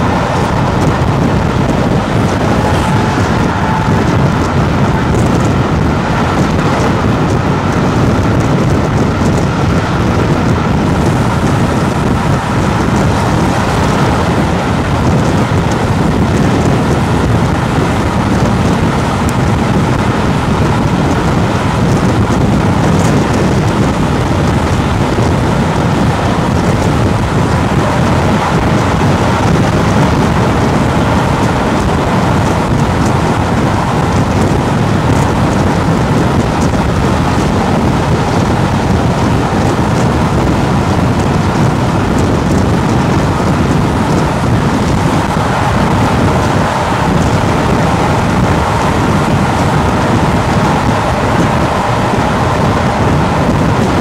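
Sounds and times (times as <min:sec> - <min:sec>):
train rushing at speed: 0:00.0 - 0:54.0
wheels on rail: 0:00.0 - 0:54.0
wind: 0:00.0 - 0:54.0.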